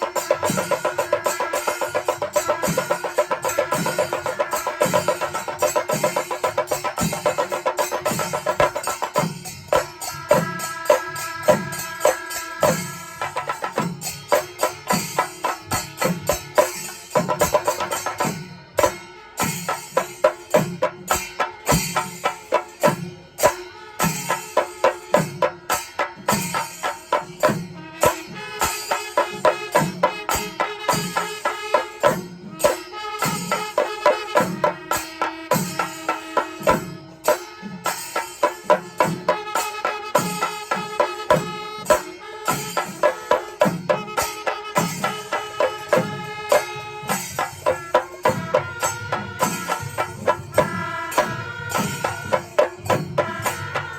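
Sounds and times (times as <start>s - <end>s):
cymbal clashes: 0.0s - 53.9s
drums beating a steady rhythm: 0.0s - 53.9s
wind instruments holding notes: 39.1s - 53.9s.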